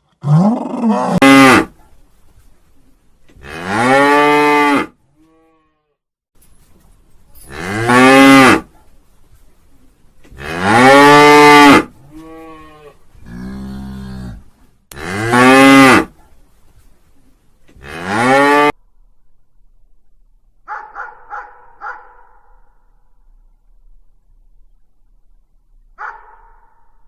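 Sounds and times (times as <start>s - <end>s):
cattle mooing: 10.4s - 16.1s.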